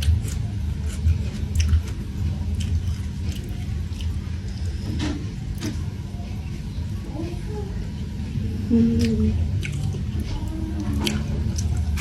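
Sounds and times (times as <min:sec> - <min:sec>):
chewing with wet mouth clicks: 0:00.0 - 0:04.6, 0:09.0 - 0:10.2, 0:10.8 - 0:12.0
steady low hum: 0:00.0 - 0:12.0.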